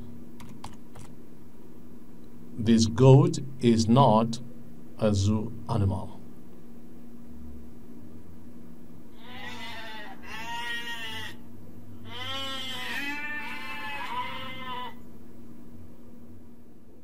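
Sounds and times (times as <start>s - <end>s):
goat bleating: 9.2s - 11.4s, 12.1s - 15.0s.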